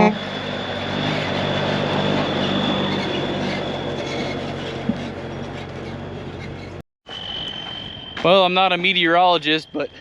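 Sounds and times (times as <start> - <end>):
truck engine running: 0.0 - 6.8
tyre and road noise: 0.0 - 10.0.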